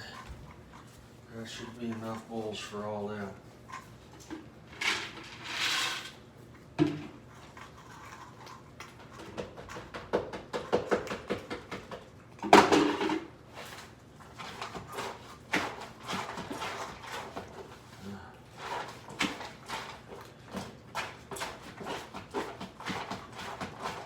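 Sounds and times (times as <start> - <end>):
bowl scraping: 4.7 - 6.2.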